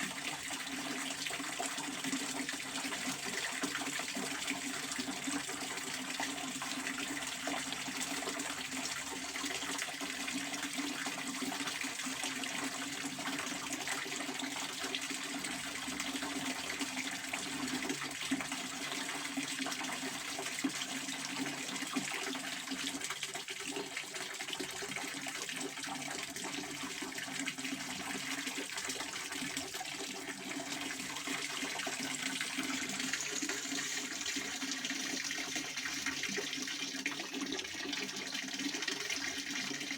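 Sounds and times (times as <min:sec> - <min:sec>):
fountain water splashing: 0:32.4 - 0:36.4.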